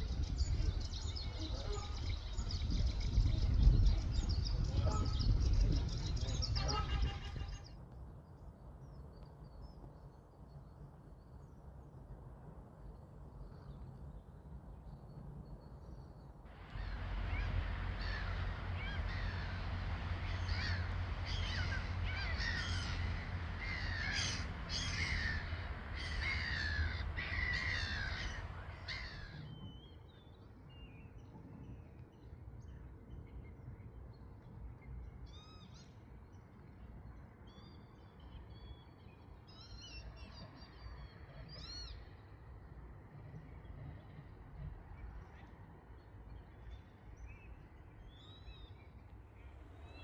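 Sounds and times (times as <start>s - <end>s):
scattered bird calls: 0.0s - 7.8s, 15.4s - 30.3s
low rumble: 16.5s - 29.4s
flock of birds calling harshly: 16.5s - 29.5s.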